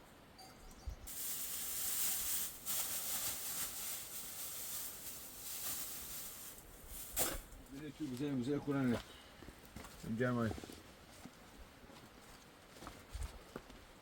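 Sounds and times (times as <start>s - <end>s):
steady high hiss: 1.1s - 7.7s.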